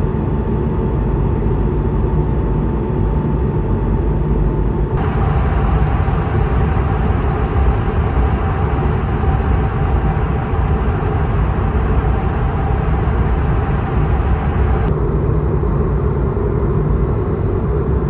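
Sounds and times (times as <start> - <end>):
airplane cabin engine rumble: 4.2 - 18.0
faint steady tone: 5.0 - 17.1.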